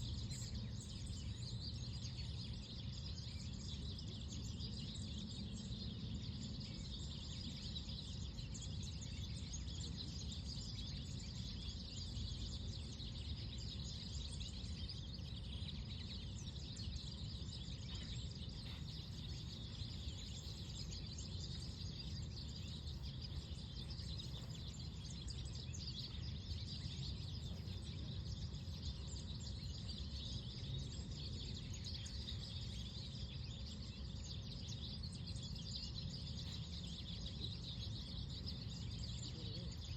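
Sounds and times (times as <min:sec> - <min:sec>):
small birds chirping: 0:00.0 - 0:39.9
low wind rumble: 0:08.8 - 0:34.0.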